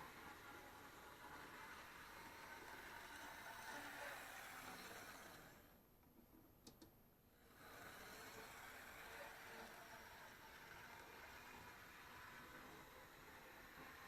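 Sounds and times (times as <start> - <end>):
model locomotive whirring: 0.0 - 5.8, 7.4 - 14.0
small clicks: 6.6 - 7.0.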